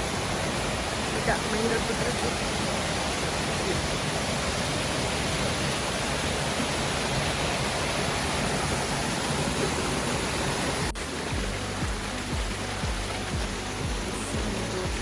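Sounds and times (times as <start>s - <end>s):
waterfall rushing: 0.0s - 15.0s
music with pulsing bass: 10.8s - 15.0s.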